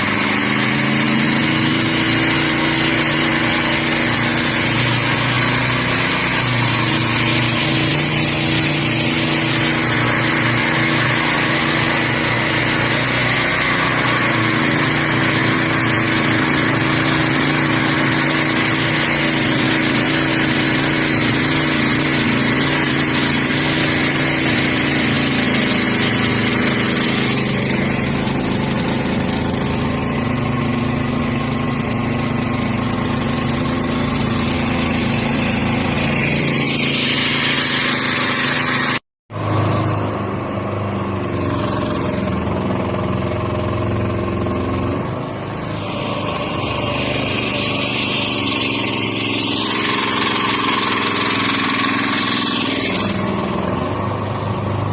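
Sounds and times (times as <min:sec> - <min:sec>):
single-cylinder engine running: 0:00.0 - 0:54.9.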